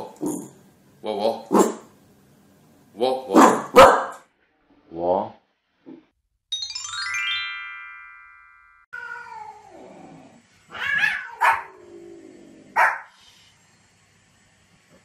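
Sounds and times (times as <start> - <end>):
dog barking: 1.5 - 1.8, 3.3 - 4.2, 11.0 - 11.7, 12.8 - 13.1
bright chime: 6.5 - 8.9
cat crying: 8.9 - 10.0, 10.7 - 11.9.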